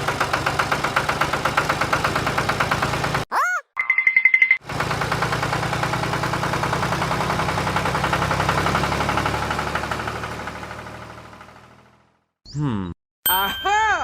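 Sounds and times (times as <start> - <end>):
tractor engine idling: 0.0 - 3.2, 4.6 - 12.1.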